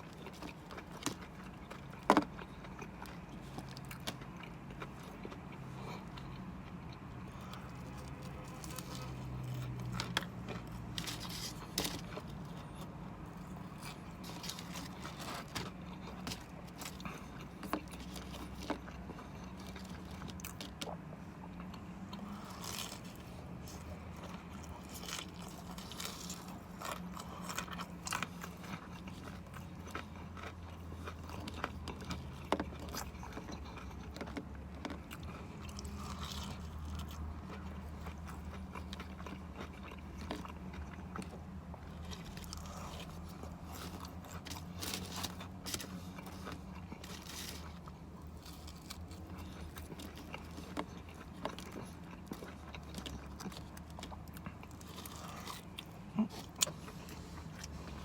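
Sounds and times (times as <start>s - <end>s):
crunchy food being chewed: 0.0s - 58.0s
low steady hum: 0.0s - 58.0s.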